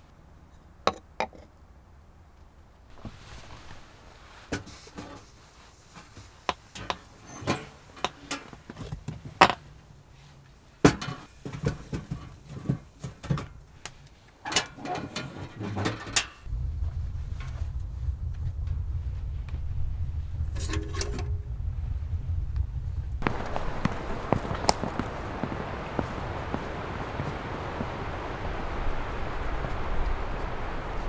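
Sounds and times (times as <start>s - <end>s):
steady low rumble: 16.5s - 31.0s.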